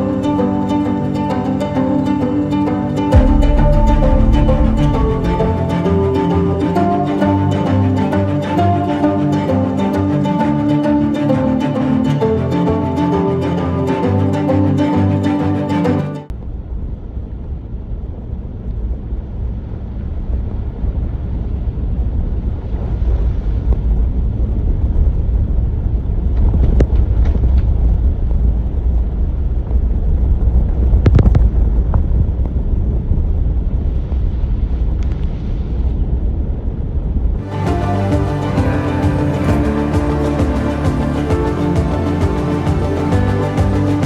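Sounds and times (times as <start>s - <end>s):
low vehicle rumble: 0.0s - 44.0s
wind buffeting microphone: 16.3s - 44.0s.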